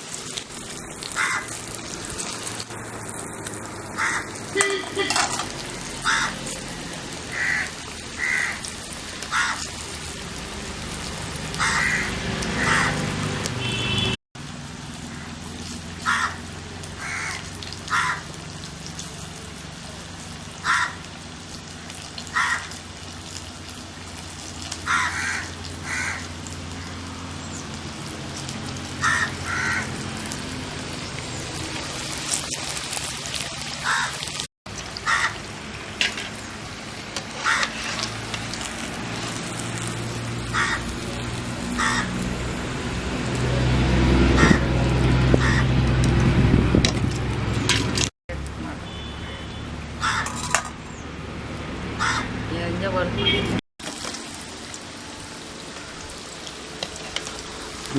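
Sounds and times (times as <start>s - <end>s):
food deep-frying in oil: 0.0s - 57.9s
crows cawing: 1.0s - 1.6s, 4.0s - 5.3s, 6.0s - 9.8s, 11.5s - 13.1s, 16.0s - 18.4s, 20.5s - 21.1s, 22.2s - 22.8s, 24.8s - 26.8s, 29.0s - 30.0s, 33.8s - 34.2s, 35.0s - 35.5s, 37.4s - 38.1s, 40.5s - 42.2s, 44.4s - 44.7s, 45.3s - 45.8s, 50.0s - 50.6s, 52.0s - 52.4s.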